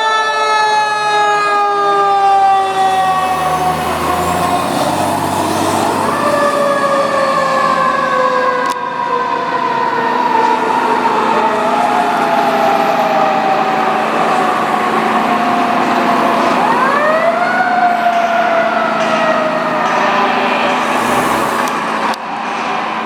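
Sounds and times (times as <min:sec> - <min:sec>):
fire truck siren wailing: 0:00.0 - 0:23.0
truck engine rumbling: 0:02.0 - 0:23.0.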